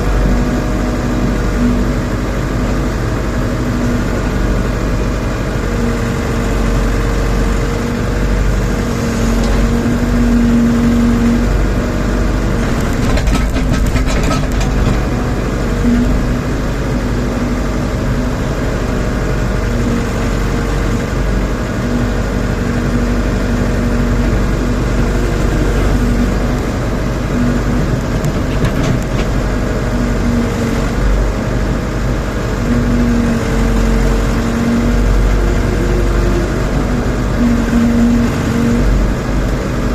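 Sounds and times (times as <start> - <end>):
diesel engine under load: 0.0 - 39.9
short clatter: 12.6 - 15.3, 27.8 - 29.5.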